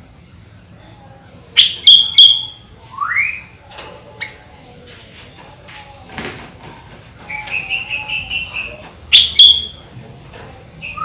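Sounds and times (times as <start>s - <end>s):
bird whistling song: 1.6s - 3.5s, 7.3s - 9.8s, 10.8s - 11.0s.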